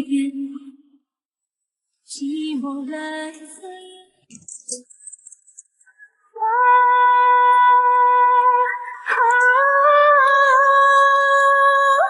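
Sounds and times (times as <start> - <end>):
pop song with female vocal: 0.0 - 0.8, 2.1 - 4.8, 6.3 - 12.0.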